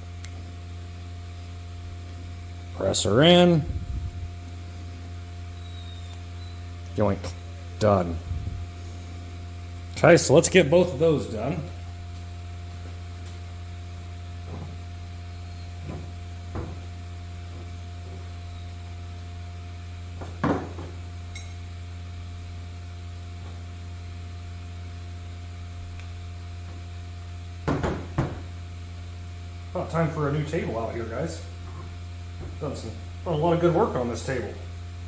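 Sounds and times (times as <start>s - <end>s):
electrical hum: 0.0s - 35.0s.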